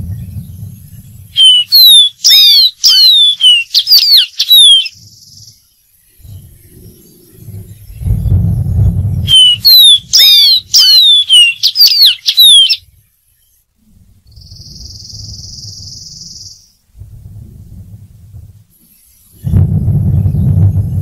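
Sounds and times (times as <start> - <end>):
low rumble: 0.0 - 1.8, 6.1 - 10.8, 13.8 - 21.0
bird singing whistled notes: 0.0 - 16.8
steady hiss: 12.9 - 20.3.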